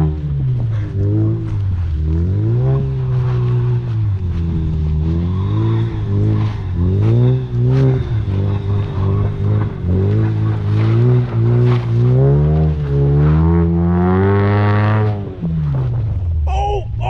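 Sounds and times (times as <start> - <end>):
car engine revving hard: 0.0 - 16.0.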